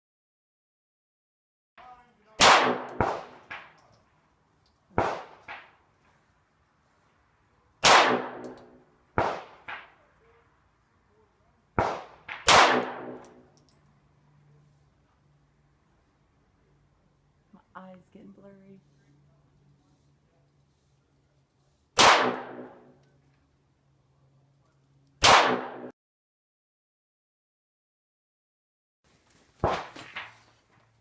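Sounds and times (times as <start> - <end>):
handgun shots echoing: 2.4 - 3.8, 5.0 - 5.7, 7.8 - 9.9, 11.8 - 13.5, 22.0 - 23.0, 25.2 - 25.9.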